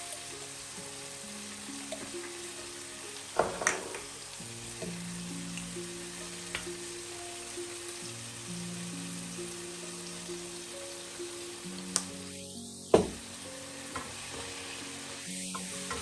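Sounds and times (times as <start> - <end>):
eggplant sizzling in oil: 0.0 - 16.0.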